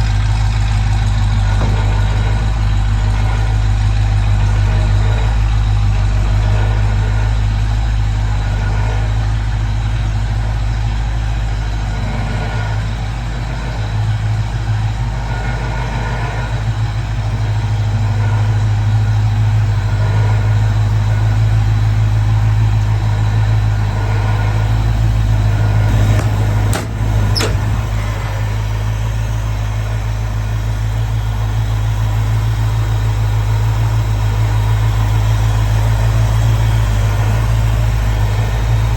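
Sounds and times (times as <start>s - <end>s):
car engine idling: 0.0s - 38.9s
brief clicks: 25.9s - 28.3s.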